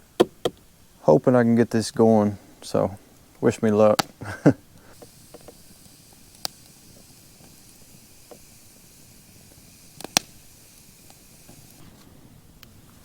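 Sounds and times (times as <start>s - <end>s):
campfire hissing: 0.0s - 13.0s
sharp fire pops: 3.4s - 12.0s.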